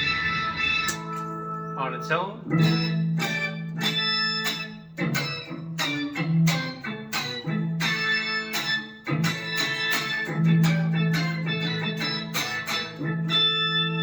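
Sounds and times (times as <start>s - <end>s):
guitar synth lead notes: 0.0s - 14.0s.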